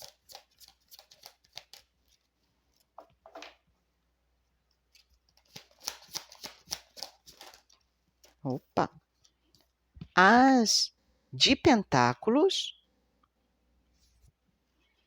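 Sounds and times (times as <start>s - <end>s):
cards being shuffled: 0.0s - 2.3s, 5.0s - 8.5s.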